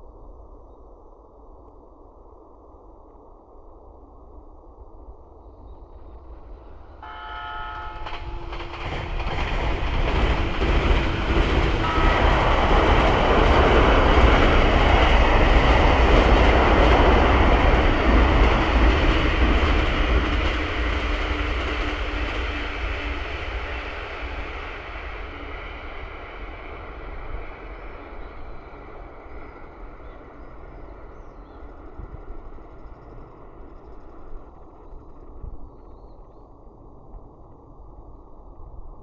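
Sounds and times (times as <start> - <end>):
train rumbling over bridge: 5.9 - 35.4
train horn blast: 7.0 - 9.3, 11.6 - 14.2.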